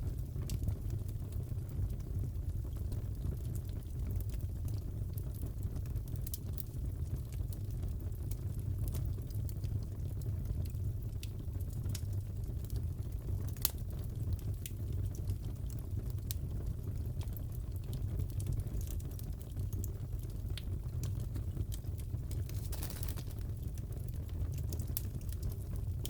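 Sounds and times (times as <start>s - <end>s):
fire rumbling: 0.0s - 26.0s
wood popping and crackling: 19.0s - 25.6s.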